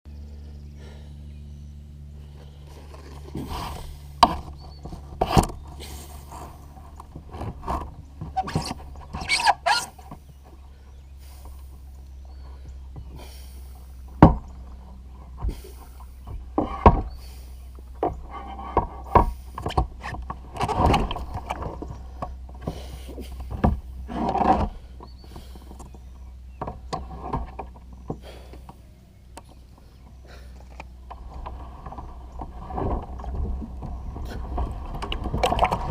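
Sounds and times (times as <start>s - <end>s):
steady low rumble: 0.1s - 35.9s
knocks and bumps on kayak: 14.1s - 26.0s, 31.1s - 35.9s
water splashes: 31.2s - 35.9s.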